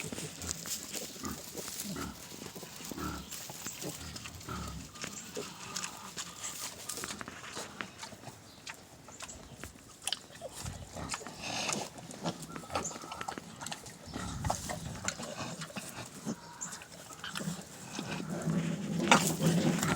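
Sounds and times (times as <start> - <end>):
pigs grunting: 0.0 - 9.4, 10.0 - 19.9.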